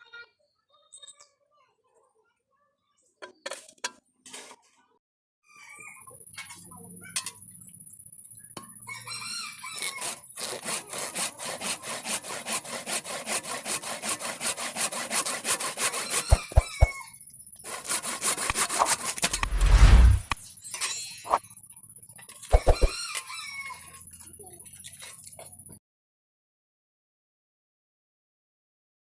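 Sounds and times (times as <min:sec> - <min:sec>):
rooster crowing: 0:08.9 - 0:10.0, 0:16.0 - 0:17.1, 0:22.6 - 0:23.9
rasping strokes on saw blade: 0:09.6 - 0:17.0, 0:17.6 - 0:20.4, 0:22.4 - 0:24.0.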